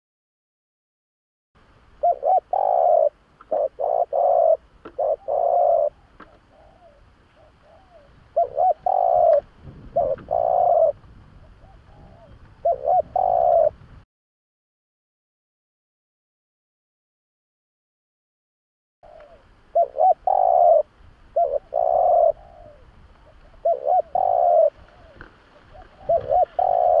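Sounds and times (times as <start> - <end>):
dove cooing: 2.0 - 13.8, 19.0 - 27.0.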